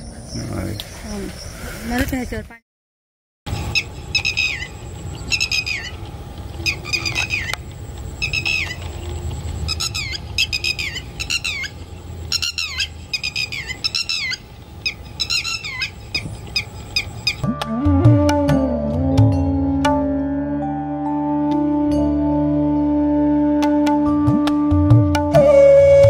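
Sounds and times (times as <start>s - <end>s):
bird calling: 3.5s - 17.5s.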